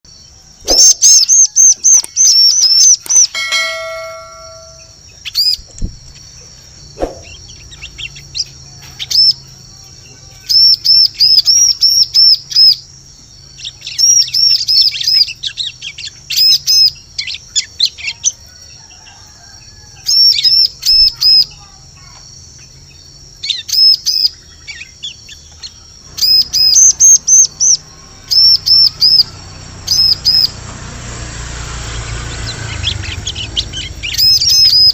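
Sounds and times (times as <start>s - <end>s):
bird sharp chirps: 0.6s - 6.3s, 7.0s - 9.4s
short ringing tone: 3.2s - 5.0s.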